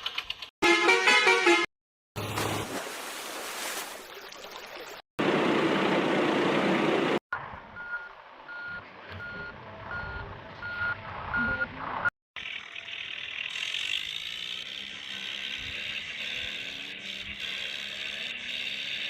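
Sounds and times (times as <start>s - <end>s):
vehicle reversing beeper: 7.8s - 11.7s.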